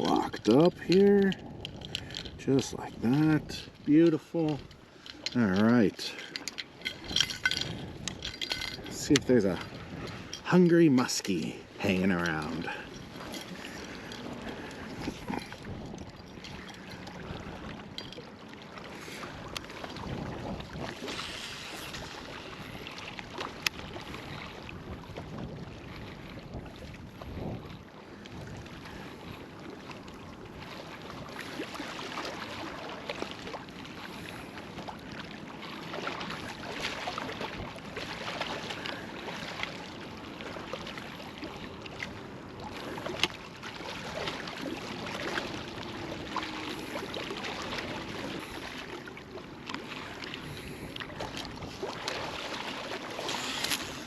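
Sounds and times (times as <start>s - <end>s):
lapping water: 0.0s - 24.8s, 25.9s - 54.0s
wind buffeting microphone: 0.0s - 32.8s, 50.0s - 54.0s.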